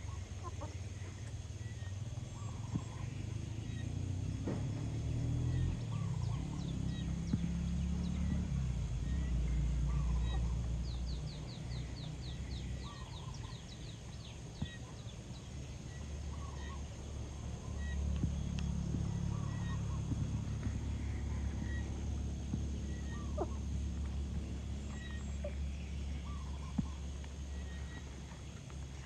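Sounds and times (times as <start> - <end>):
chickens clucking: 0.0 - 1.4, 17.7 - 29.0
low rumble: 0.8 - 29.0.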